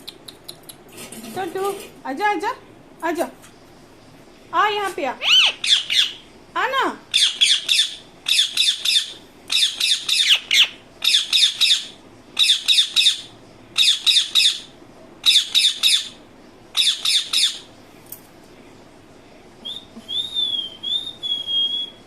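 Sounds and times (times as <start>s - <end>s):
parakeet squawking: 5.2s - 6.2s, 7.1s - 16.2s, 16.8s - 17.7s.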